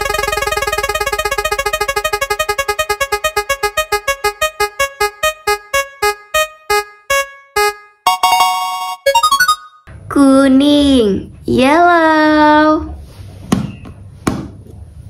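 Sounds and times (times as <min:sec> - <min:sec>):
spin wheel electronic ticks: 0:00.0 - 0:08.8.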